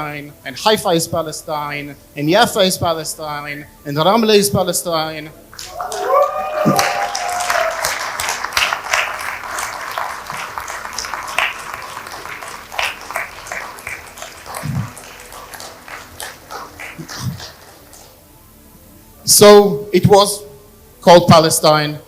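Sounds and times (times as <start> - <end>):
audience applauding: 5.6 - 18.0.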